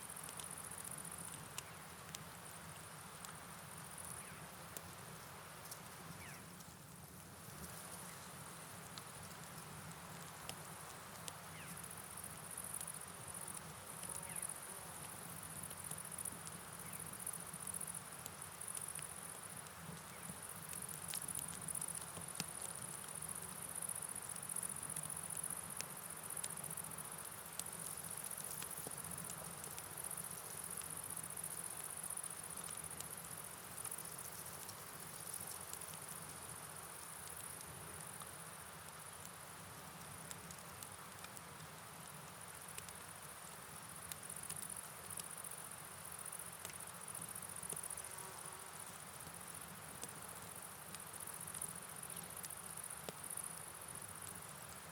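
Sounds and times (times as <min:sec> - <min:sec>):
rain patter: 0:00.0 - 0:48.0.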